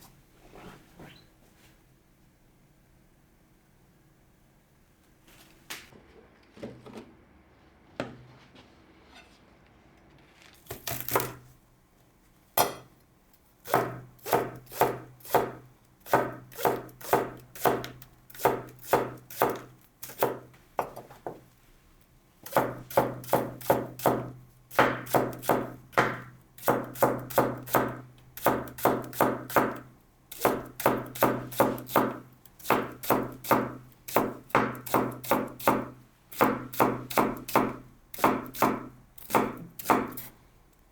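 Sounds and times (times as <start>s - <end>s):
knife chopping on cutting board: 10.7s - 11.4s, 13.7s - 21.4s, 22.5s - 40.3s.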